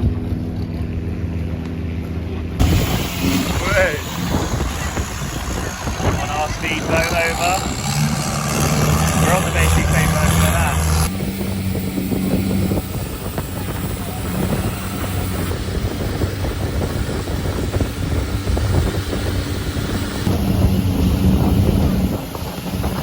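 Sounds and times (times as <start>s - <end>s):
speedboat engine drone: 0.0s - 23.0s
water slapping hull: 0.0s - 23.0s
wind buffeting microphone: 0.0s - 23.0s.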